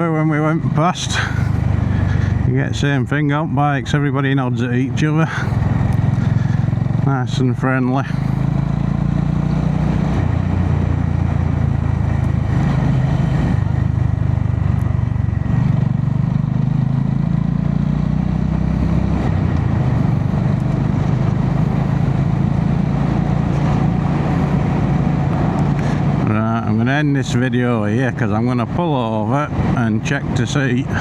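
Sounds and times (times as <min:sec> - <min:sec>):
motorcycle engine running: 0:00.0 - 0:27.4
road noise: 0:00.0 - 0:31.0
wind noise: 0:08.6 - 0:16.0.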